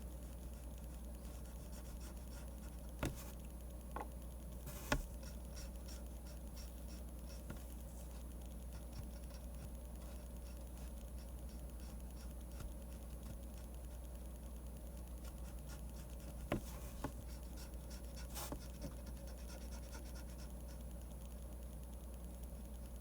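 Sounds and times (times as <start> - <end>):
steady low hum: 0.0 - 23.0
pen scratching on paper: 1.2 - 3.4, 4.7 - 14.0, 15.2 - 20.6.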